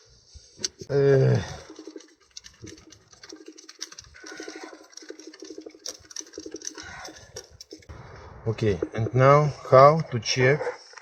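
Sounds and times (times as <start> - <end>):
sharp metal clicks: 1.5 - 8.0.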